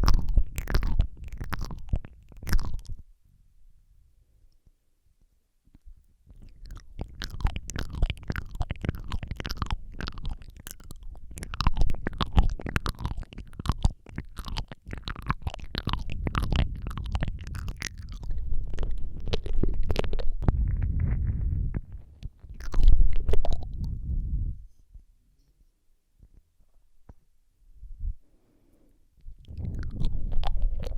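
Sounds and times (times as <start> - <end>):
wet mouth clicks and smacks: 0.0 - 3.0, 5.7 - 24.0, 29.2 - 30.9
low rumble: 16.2 - 24.7.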